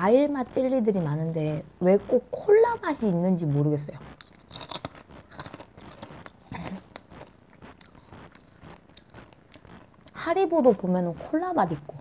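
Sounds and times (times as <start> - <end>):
popcorn being crunched and chewed: 3.8 - 12.0.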